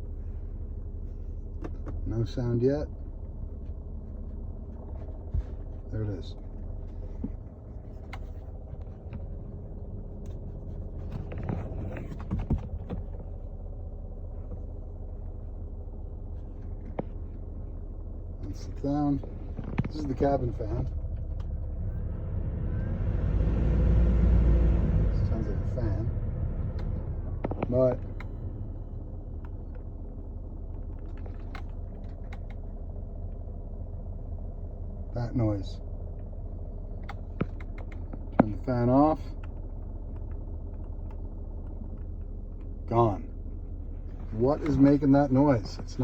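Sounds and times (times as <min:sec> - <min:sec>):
steady whirring rumble: 0:00.0 - 0:46.0
engine compartment racket: 0:01.1 - 0:14.8, 0:18.4 - 0:21.9, 0:24.9 - 0:32.9, 0:36.8 - 0:43.2.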